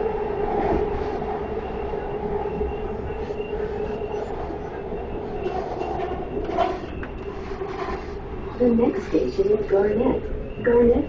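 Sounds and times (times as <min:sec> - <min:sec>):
steady whining tone: 0:00.0 - 0:11.0
subway car rumbling on track: 0:00.0 - 0:11.0.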